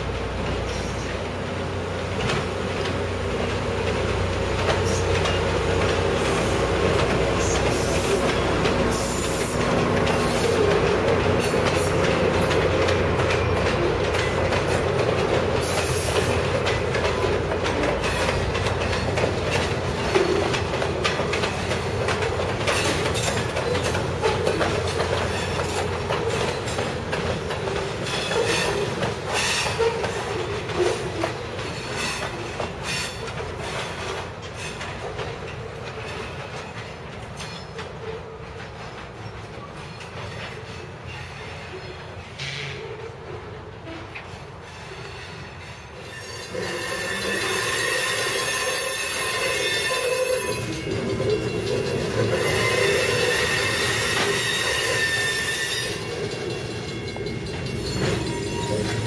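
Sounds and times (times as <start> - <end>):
freight train rolling: 0.0 - 59.0
wheels clicking over rail joints: 2.0 - 43.2, 43.8 - 59.0
wheel squeal: 44.7 - 56.6, 57.8 - 59.0.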